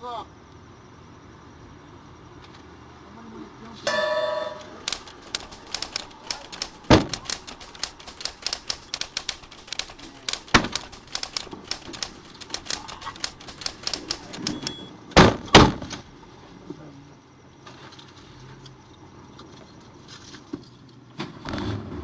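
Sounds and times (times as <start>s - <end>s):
rapid irregular clicking: 4.6s - 14.9s
sharp knocks: 4.9s - 14.6s.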